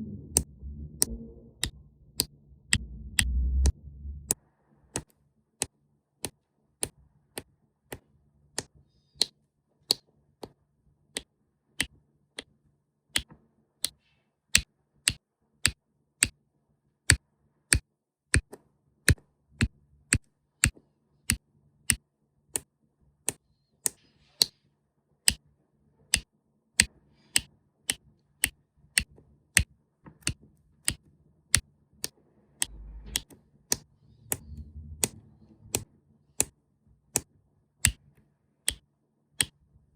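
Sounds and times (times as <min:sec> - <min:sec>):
faint low hum: 0:00.0 - 0:05.0, 0:32.3 - 0:37.8.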